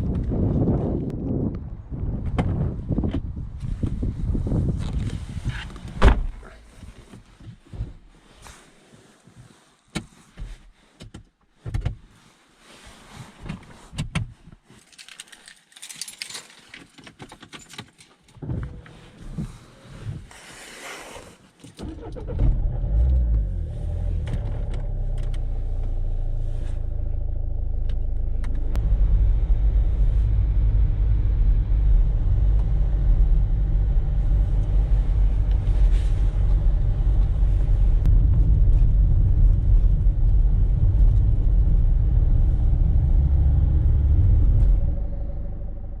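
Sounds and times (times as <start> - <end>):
car engine rumbling: 0.0 - 8.6, 18.4 - 20.7, 21.4 - 46.0.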